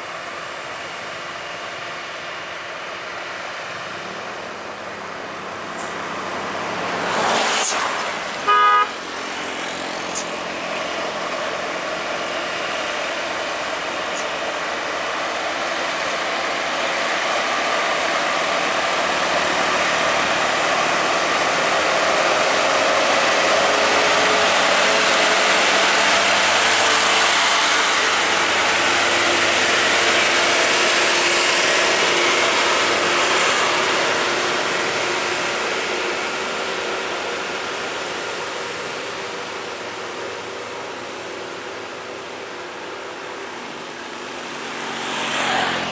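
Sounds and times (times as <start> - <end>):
heavy truck engines: 0.0 - 45.9
truck horn toot: 8.4 - 9.0.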